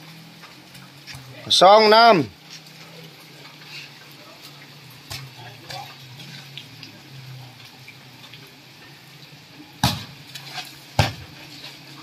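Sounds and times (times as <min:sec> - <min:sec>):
heavy rain on concrete: 0:00.0 - 0:12.0
volleyball being struck: 0:09.8 - 0:10.2, 0:11.0 - 0:11.3.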